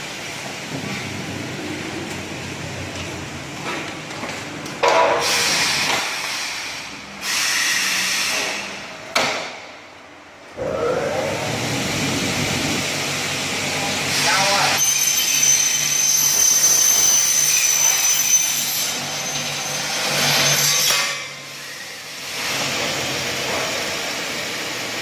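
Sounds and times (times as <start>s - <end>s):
aluminium cutting saw running: 13.4s - 21.0s.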